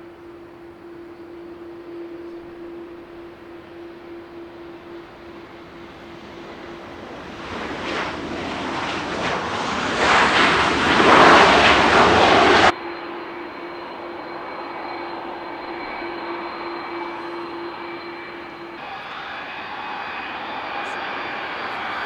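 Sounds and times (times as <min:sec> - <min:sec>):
jet airliner engine noise: 0:00.0 - 0:22.0
quiet steady jet engine noise: 0:00.0 - 0:22.0.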